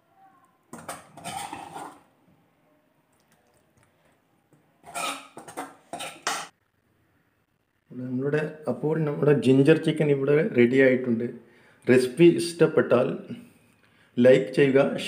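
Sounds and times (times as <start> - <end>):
spoon scraping a pan: 0.7 - 2.1, 4.8 - 6.5.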